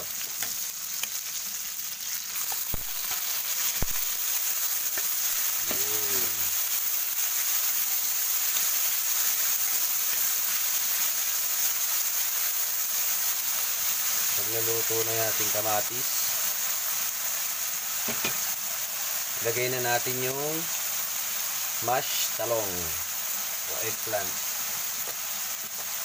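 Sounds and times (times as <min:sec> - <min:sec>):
tomatoes sizzling in hot oil: 0:00.0 - 0:26.0.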